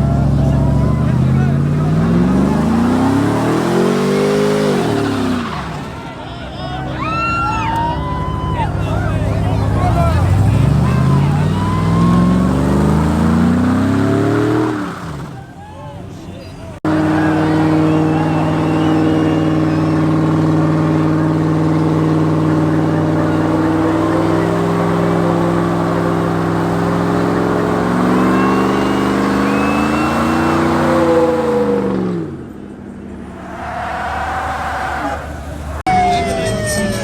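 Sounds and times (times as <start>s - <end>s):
truck engine revving: 0.0s - 15.6s, 16.6s - 37.0s.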